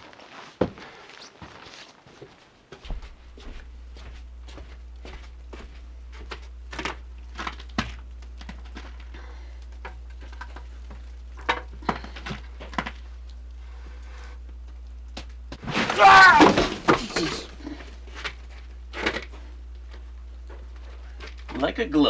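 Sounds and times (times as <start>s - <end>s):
objects knocking and clattering: 15.6s - 17.6s.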